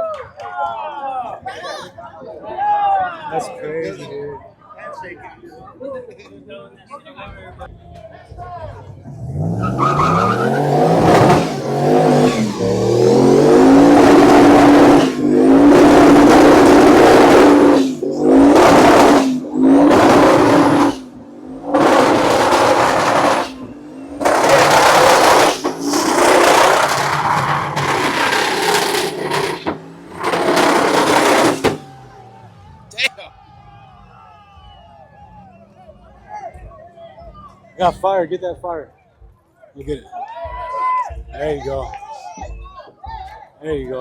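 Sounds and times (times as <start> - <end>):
tires spinning: 8.8 - 36.2
car engine revving: 8.9 - 33.0.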